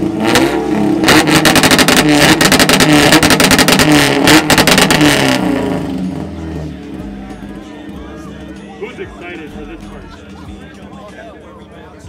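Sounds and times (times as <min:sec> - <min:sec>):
engine revving hard: 0:00.0 - 0:06.8.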